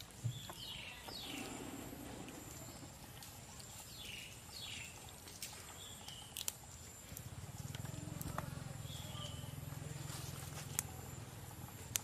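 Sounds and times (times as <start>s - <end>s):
bird chirping: 0.1s - 7.1s, 7.9s - 9.9s.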